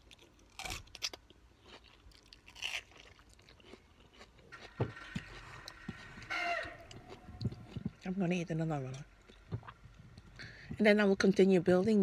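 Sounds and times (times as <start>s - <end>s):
person chewing and crunching: 0.0s - 8.2s.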